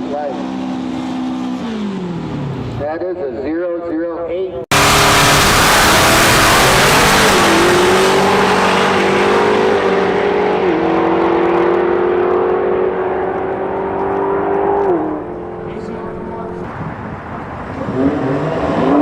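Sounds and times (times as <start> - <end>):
drag racing car accelerating: 4.7 - 19.0.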